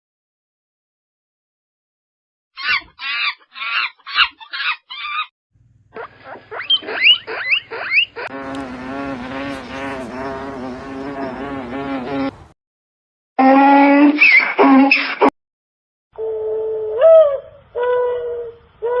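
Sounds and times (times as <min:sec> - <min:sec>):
animal short calls: 0:06.0 - 0:11.4
long wavering animal call: 0:16.2 - 0:19.0.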